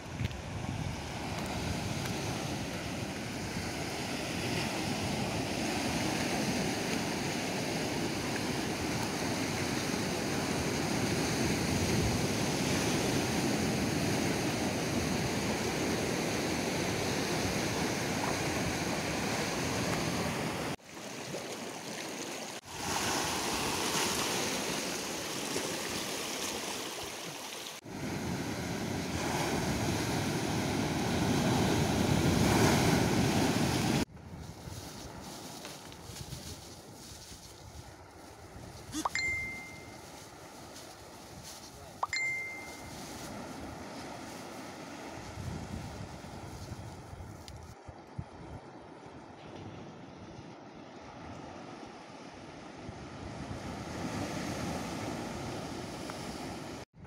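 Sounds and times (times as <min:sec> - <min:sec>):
wind rumble on microphone: 0:00.0 - 0:07.2, 0:27.9 - 0:39.0, 0:45.1 - 0:51.7, 0:52.7 - 0:57.0.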